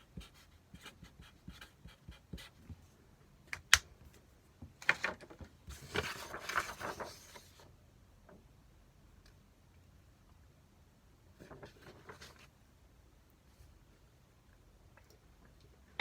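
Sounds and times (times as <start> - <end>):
rustling and scraping: 5.0 - 7.7.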